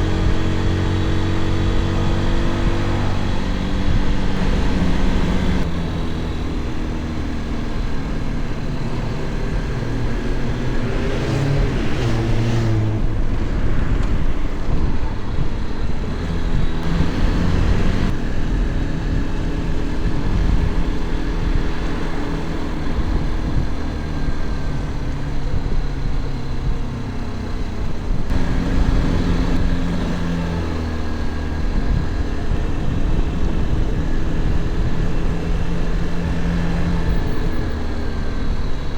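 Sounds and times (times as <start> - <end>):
wind rush: 0.0 - 7.0, 8.8 - 26.8, 27.8 - 38.9
motorcycle engine revving: 0.0 - 38.9.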